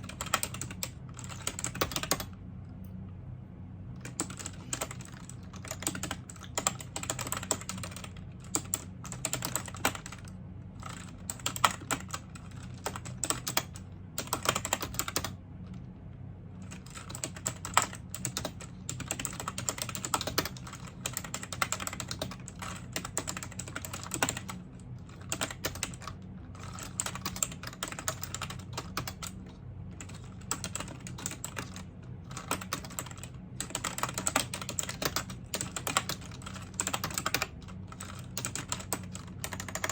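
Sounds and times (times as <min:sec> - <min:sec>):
keyboard typing clicks: 0:00.0 - 0:02.3, 0:04.0 - 0:12.2, 0:16.7 - 0:24.6, 0:30.0 - 0:39.9.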